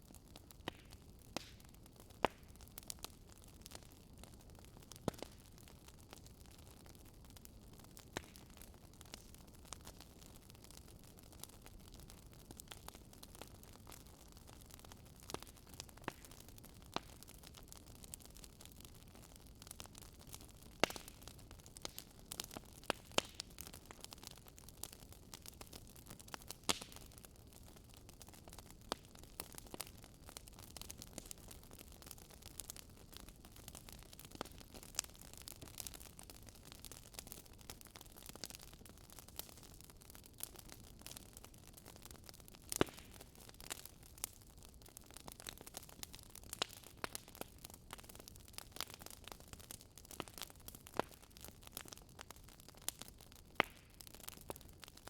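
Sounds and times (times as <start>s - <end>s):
wood fire crackling: 0.0s - 55.0s
fire pops: 2.2s - 2.5s, 4.9s - 5.4s, 20.4s - 24.1s, 26.4s - 27.2s, 42.7s - 44.3s.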